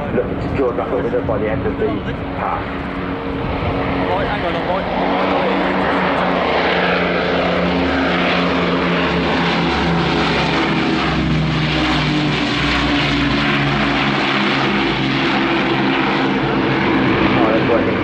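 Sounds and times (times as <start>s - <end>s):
propeller aircraft engines droning: 0.0s - 18.0s.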